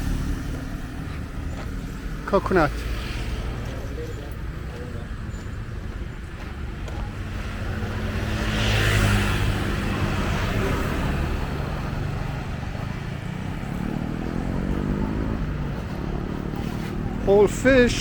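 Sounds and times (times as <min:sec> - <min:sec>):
traffic hum: 0:00.0 - 0:18.0
vehicle engine passing close: 0:07.1 - 0:18.0.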